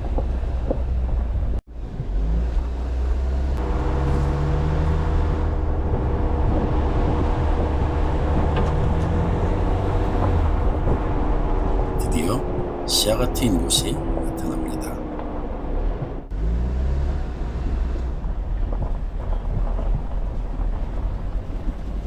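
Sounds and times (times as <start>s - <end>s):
car engine rumbling at low speed: 0.0s - 22.0s.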